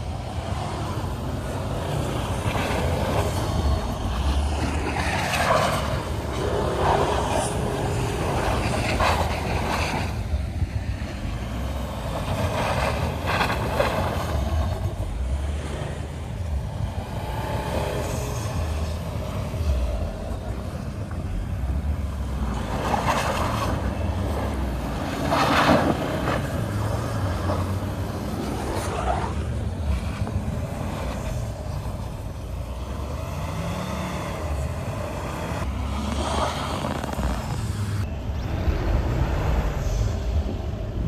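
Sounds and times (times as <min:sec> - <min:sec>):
diesel engine running under load: 0:00.0 - 0:28.8
rushes of snow and wind: 0:00.0 - 0:41.0.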